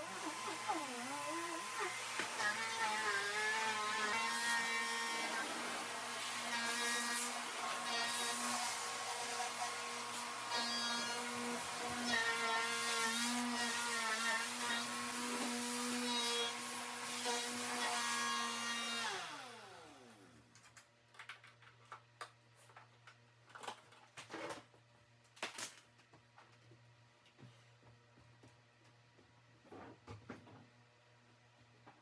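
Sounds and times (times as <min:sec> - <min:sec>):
vacuum cleaner motor whine: 0:00.0 - 0:12.6.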